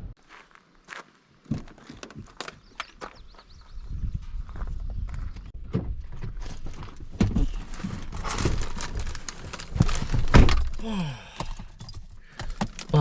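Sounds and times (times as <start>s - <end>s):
low rumble inside truck cab: 5.2s - 13.0s
knocks and thuds: 5.6s - 8.7s.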